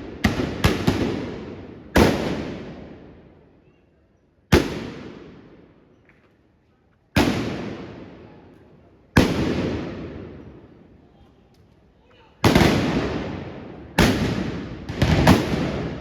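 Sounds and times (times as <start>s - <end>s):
blunderbuss blasts with echo: 12.4s - 16.0s.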